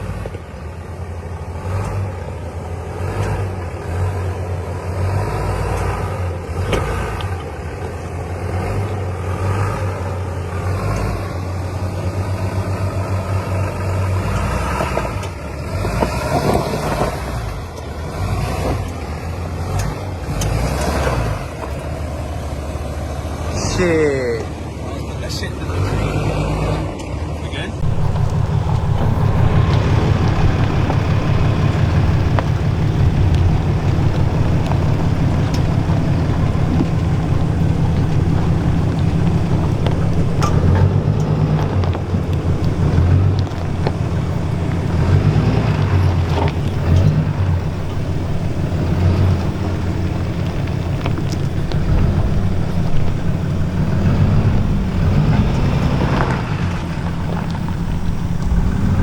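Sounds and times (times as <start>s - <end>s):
diesel truck engine under load: 0.0s - 59.0s
wind on microphone: 27.8s - 59.0s.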